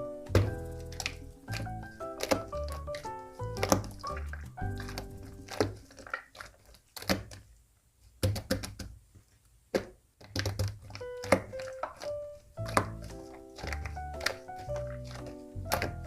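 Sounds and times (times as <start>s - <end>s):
faint background music: 0.0s - 6.2s, 10.6s - 16.0s
slime clicking and popping: 0.3s - 7.5s, 10.2s - 16.0s.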